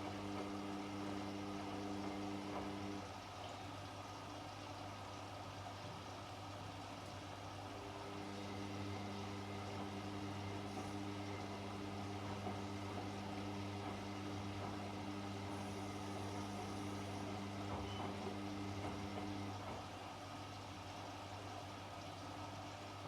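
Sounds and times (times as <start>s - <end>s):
washing machine motor hum: 0.0s - 3.3s, 7.6s - 20.6s.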